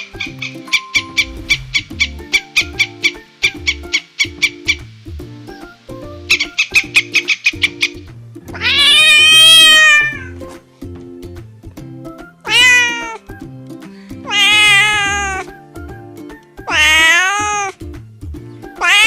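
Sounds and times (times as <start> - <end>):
background music: 0.0 - 19.0
cat meowing: 8.5 - 10.4, 12.5 - 13.2, 14.2 - 15.5, 16.7 - 17.8, 18.8 - 19.0.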